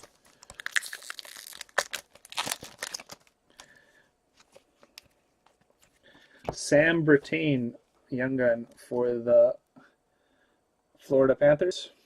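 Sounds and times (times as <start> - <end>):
card pack wrapper crinkling: 0.0 - 3.7.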